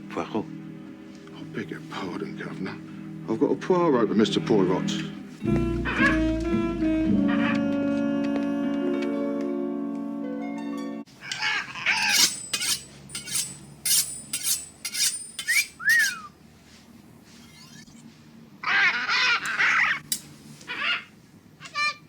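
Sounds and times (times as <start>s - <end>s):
orchestral music with held notes: 0.0s - 11.1s
parrot squawking: 5.8s - 6.3s, 11.2s - 12.8s, 15.0s - 16.3s, 18.6s - 20.1s, 20.7s - 22.0s
parrot whistles: 15.5s - 16.3s.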